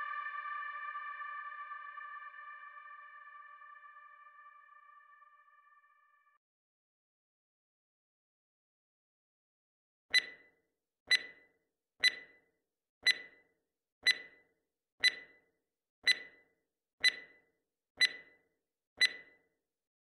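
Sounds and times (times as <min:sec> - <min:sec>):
electronic countdown beeps: 0:10.1 - 0:10.5, 0:11.1 - 0:19.5.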